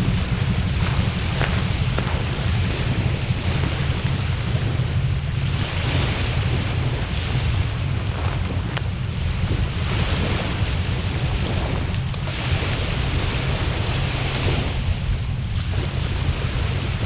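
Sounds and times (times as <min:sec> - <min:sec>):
fire crackles: 0:00.0 - 0:13.2
bonfire flames rumbling: 0:00.0 - 0:17.0
high whine: 0:00.0 - 0:17.0
wind buffeting microphone: 0:00.0 - 0:17.0.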